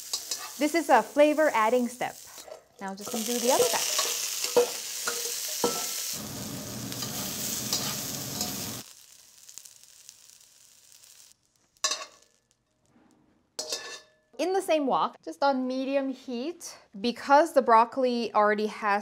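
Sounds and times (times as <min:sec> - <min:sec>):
broccoli sizzling in wok: 0:00.0 - 0:12.5
metal tongs clicking on pan: 0:00.1 - 0:00.6, 0:02.4 - 0:05.9, 0:06.9 - 0:08.7, 0:11.8 - 0:12.4, 0:13.6 - 0:14.0.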